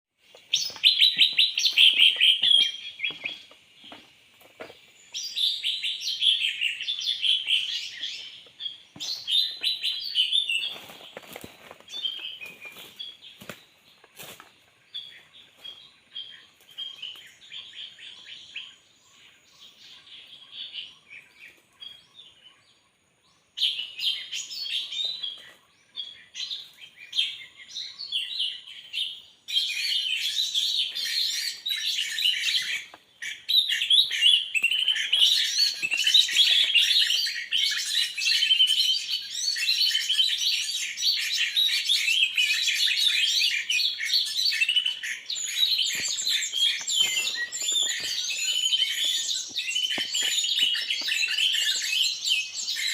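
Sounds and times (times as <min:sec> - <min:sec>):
small birds chirping: 0:00.2 - 0:52.9.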